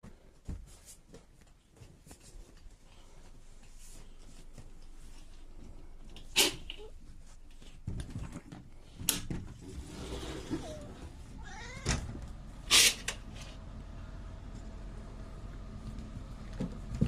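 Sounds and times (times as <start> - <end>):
cat mewing faintly: 10.6 - 12.0.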